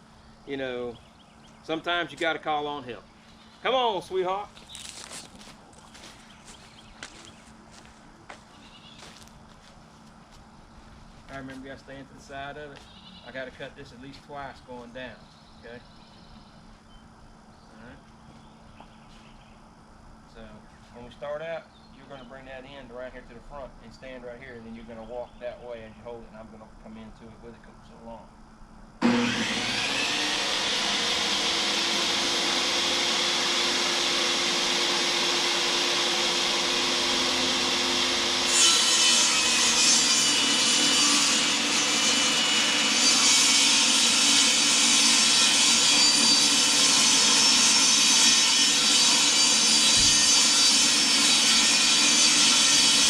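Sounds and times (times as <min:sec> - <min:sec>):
power saw ripping wood: 0:29.0 - 0:53.0.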